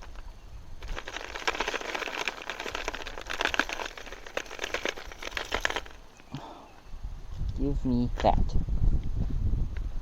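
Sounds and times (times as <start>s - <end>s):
plastic tackle clicking and crinkling: 0.0s - 6.0s.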